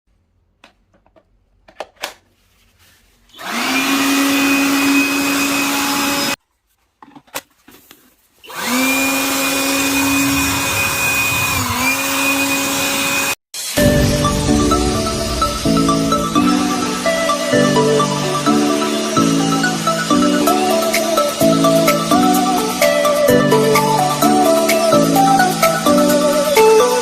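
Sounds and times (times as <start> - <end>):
blower motor whining: 3.3 - 6.4, 8.4 - 27.0.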